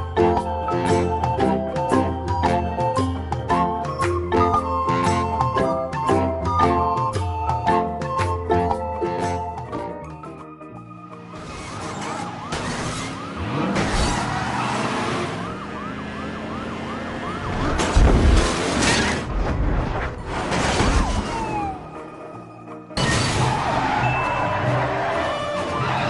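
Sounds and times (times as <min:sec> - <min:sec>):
police siren yelping: 0:11.8 - 0:18.0, 0:21.1 - 0:22.2
loud low thump and crash: 0:17.7 - 0:21.4.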